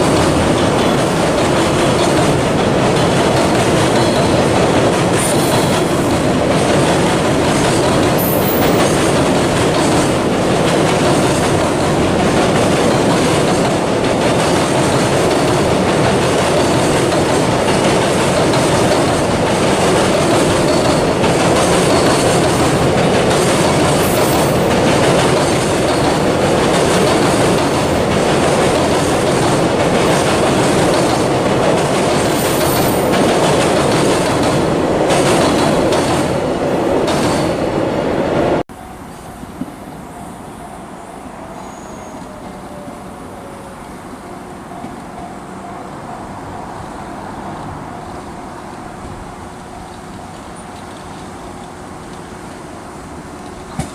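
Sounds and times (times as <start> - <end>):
train wheels clattering over rails: 0.0 - 37.6, 53.3 - 53.9
high wheel squeals: 41.4 - 43.7.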